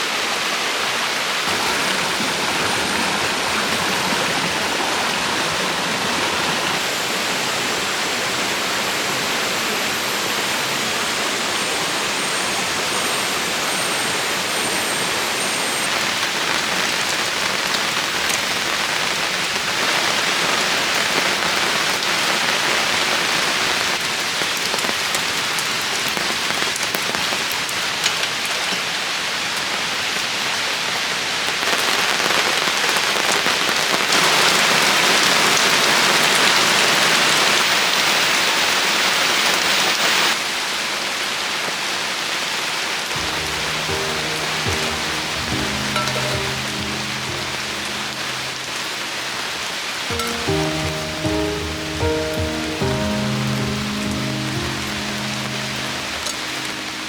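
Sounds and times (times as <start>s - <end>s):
steady rain hiss: 0.0s - 57.0s
raindrops ticking on surface: 7.9s - 30.6s, 43.1s - 57.0s.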